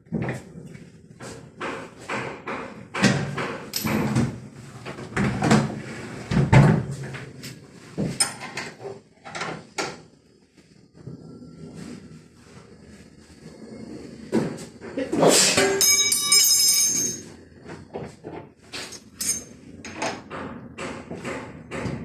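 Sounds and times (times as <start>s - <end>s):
wrench clanking on metal bolts: 18.9s - 20.1s.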